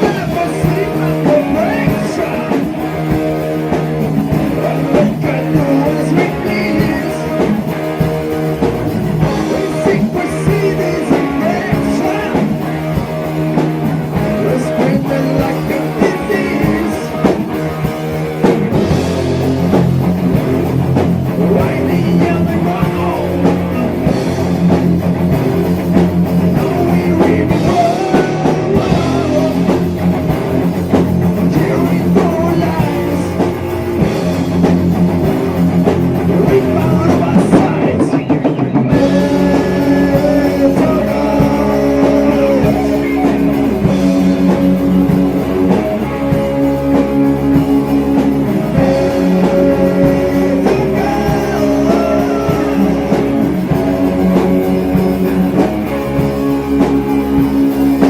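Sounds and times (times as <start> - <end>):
person singing: 0.0 - 2.9, 4.4 - 7.8, 9.2 - 13.0, 14.2 - 17.7, 21.3 - 24.1, 26.4 - 30.0, 31.4 - 33.8, 36.3 - 56.2
distorted electric guitars: 0.0 - 58.0
drum kit: 0.0 - 58.0.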